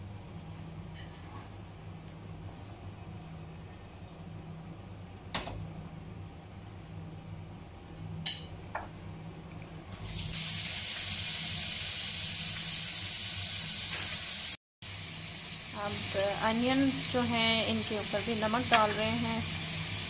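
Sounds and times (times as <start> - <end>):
prawns sizzling in oil: 10.0 - 20.0.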